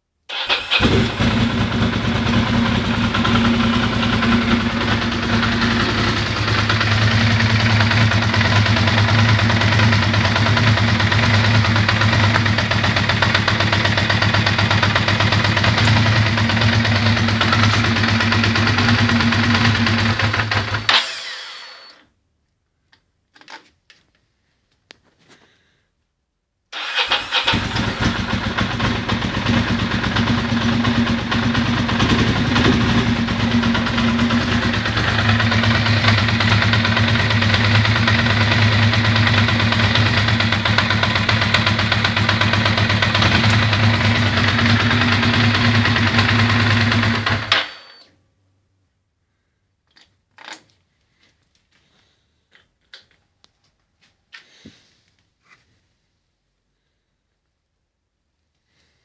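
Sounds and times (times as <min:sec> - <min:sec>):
motorcycle engine idling: 0:00.3 - 0:20.9, 0:26.8 - 0:47.7.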